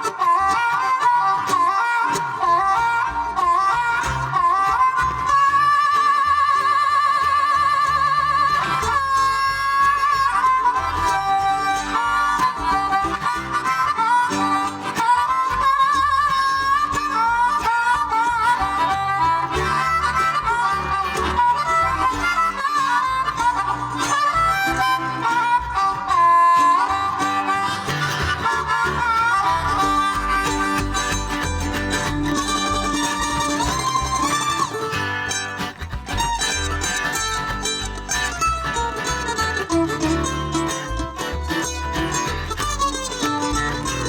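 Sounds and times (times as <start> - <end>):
bass: 0.0 - 44.0
strummed guitar: 0.0 - 44.0
warbling lead melody: 18.2 - 35.7.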